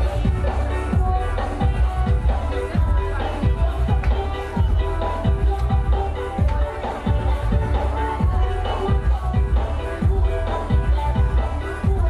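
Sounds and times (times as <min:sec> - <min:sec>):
dance music on a sound system: 0:00.0 - 0:12.0
heavy bass kick drums: 0:00.0 - 0:12.0.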